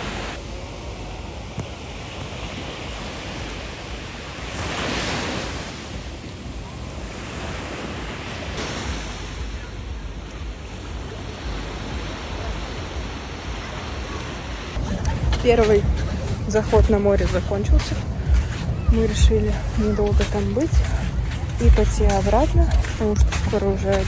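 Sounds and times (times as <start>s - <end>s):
waves washing onto shore: 0.0s - 24.0s
wind buffeting microphone: 14.8s - 24.0s.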